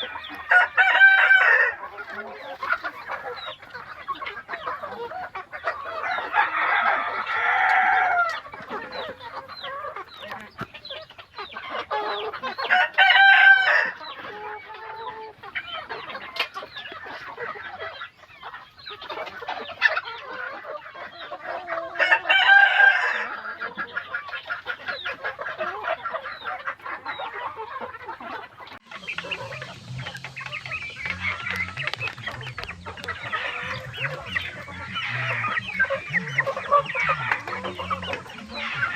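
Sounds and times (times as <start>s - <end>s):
chickens clucking: 0.0s - 38.9s
rooster crowing: 0.4s - 1.8s, 6.0s - 8.4s, 12.6s - 14.0s, 22.0s - 23.3s.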